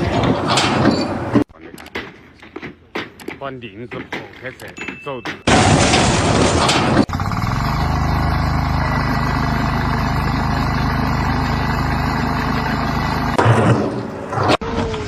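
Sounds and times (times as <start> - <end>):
engine running steadily: 5.5 - 13.6.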